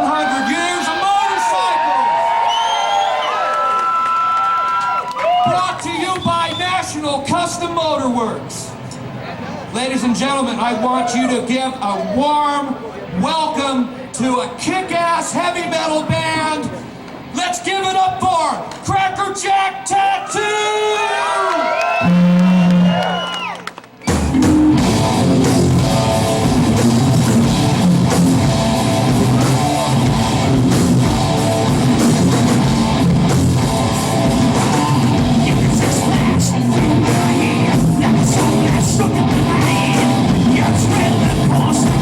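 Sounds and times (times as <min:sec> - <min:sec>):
heavy metal band playing live: 0:24.1 - 0:42.0.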